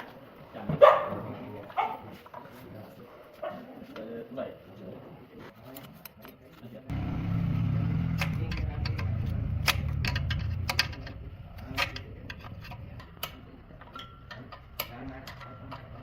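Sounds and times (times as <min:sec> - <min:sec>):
engine humming: 0:06.9 - 0:13.2
sharp clicks and ticks: 0:08.0 - 0:15.9.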